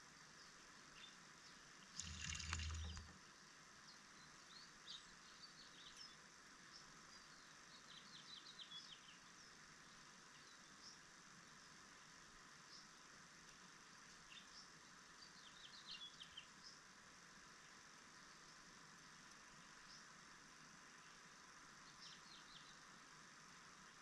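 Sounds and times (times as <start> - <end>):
small birds chirping: 0.3 - 3.1, 3.9 - 11.8, 13.9 - 16.9, 20.9 - 23.0.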